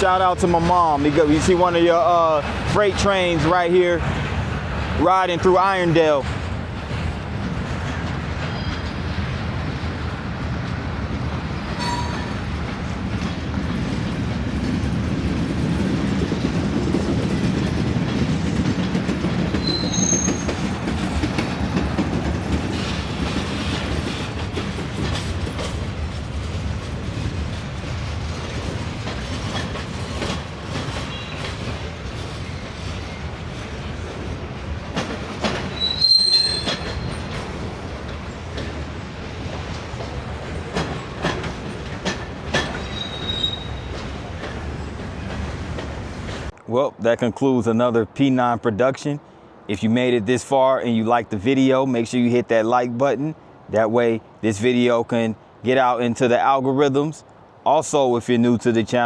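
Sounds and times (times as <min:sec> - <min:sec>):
train wheels rumbling on rail: 0:00.0 - 0:46.6
high wheel squeals: 0:19.6 - 0:20.7, 0:35.7 - 0:37.4, 0:42.6 - 0:44.0.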